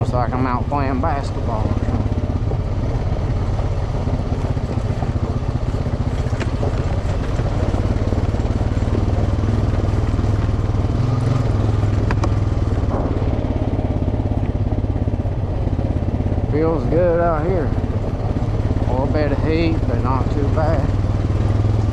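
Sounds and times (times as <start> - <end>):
off-road vehicle engine running: 0.0 - 21.9.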